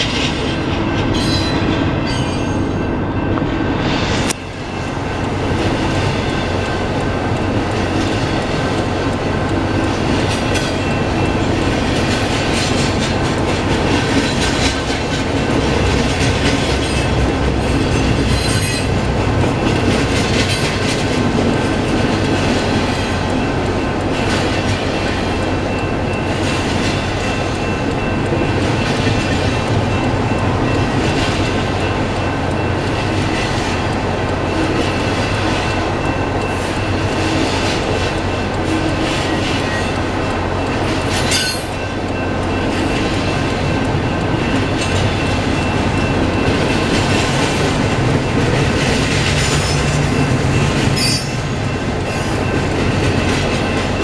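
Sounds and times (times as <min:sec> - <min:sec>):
wheel squeal on rail: 0:00.0 - 0:05.2, 0:16.0 - 0:19.0, 0:24.2 - 0:47.8, 0:48.6 - 0:54.0
freight train rolling past: 0:00.0 - 0:54.0
wheels clacking over rail joints: 0:04.5 - 0:54.0.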